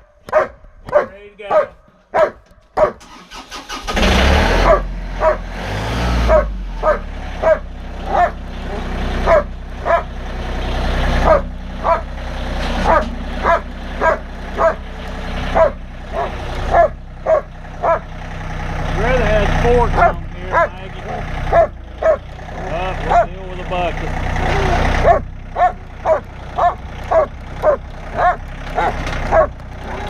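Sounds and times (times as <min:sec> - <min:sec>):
dog barking: 0:00.3 - 0:03.1, 0:04.6 - 0:05.4, 0:06.3 - 0:10.1, 0:11.2 - 0:12.1, 0:12.8 - 0:14.8, 0:15.5 - 0:18.0, 0:19.9 - 0:20.8, 0:21.5 - 0:22.2, 0:23.0 - 0:23.4, 0:24.6 - 0:30.0
tractor engine running: 0:00.3 - 0:30.0.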